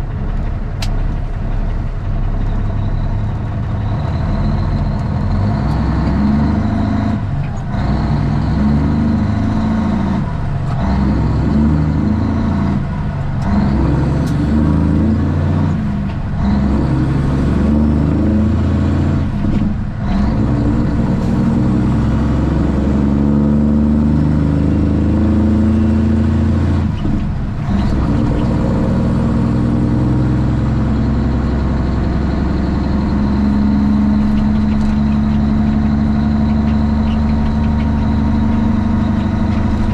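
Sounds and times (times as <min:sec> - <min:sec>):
diesel truck exhaust shifting gears: 0:00.0 - 0:39.9.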